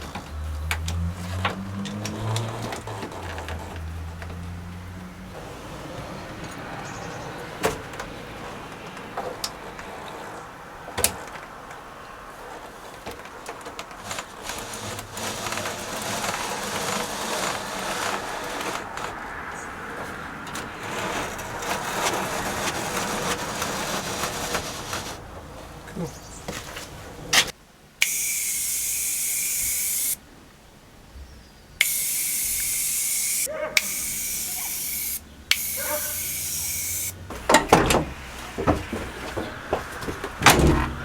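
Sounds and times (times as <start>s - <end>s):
rubbing and scraping: 0.0s - 5.6s, 12.3s - 27.6s, 31.8s - 41.0s.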